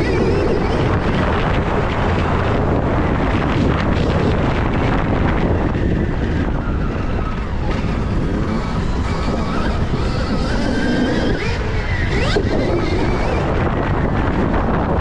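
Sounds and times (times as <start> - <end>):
wind buffeting microphone: 0.0 - 15.0
electric motor whine: 3.4 - 14.9.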